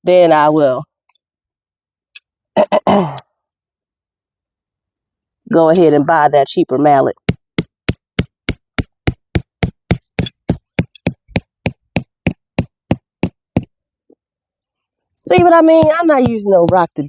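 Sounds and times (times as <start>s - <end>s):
mallet hammering tent stake: 7.2s - 13.4s, 15.2s - 17.0s.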